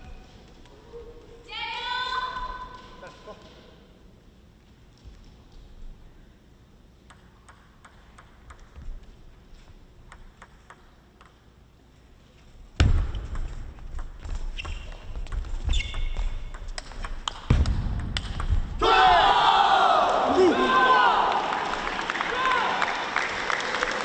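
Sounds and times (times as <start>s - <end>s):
table tennis ball clicking: 10.1s - 11.4s
crowd cheering and shouting: 18.8s - 23.0s.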